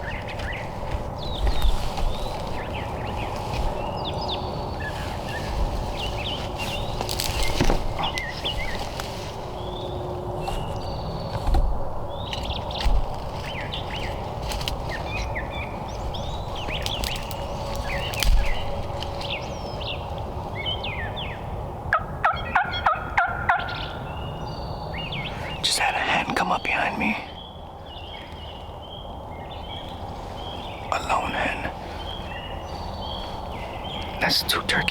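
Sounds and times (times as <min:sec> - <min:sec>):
songbirds chirping: 0:00.0 - 0:34.9
wild turkey hen yelping: 0:21.9 - 0:24.0.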